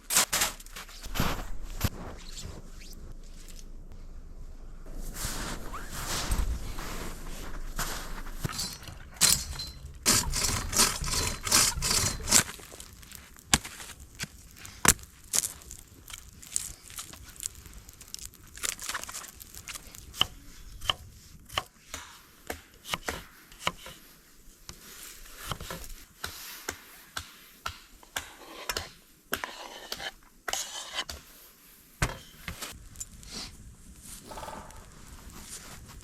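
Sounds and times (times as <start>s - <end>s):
scraping: 0.0s - 19.7s.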